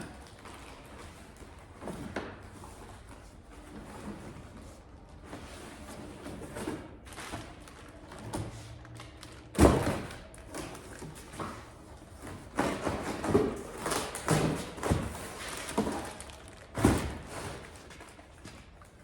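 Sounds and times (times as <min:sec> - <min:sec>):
packing material rustling: 0:12.7 - 0:19.0.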